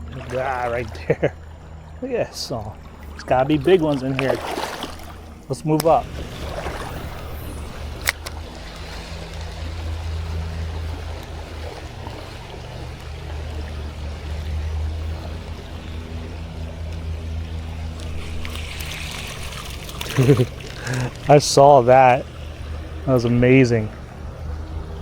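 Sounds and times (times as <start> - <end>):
flowing water: 0.0 - 25.0
low rumble: 0.0 - 25.0
sharp click: 7.0 - 8.4.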